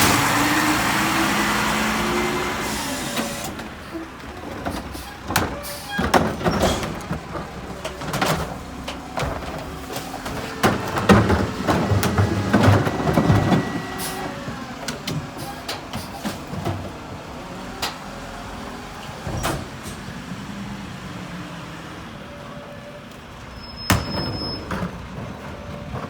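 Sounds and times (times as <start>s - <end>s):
trash knocking and clattering: 0.0s - 18.1s, 23.8s - 26.0s
garbage truck engine running: 0.0s - 26.0s.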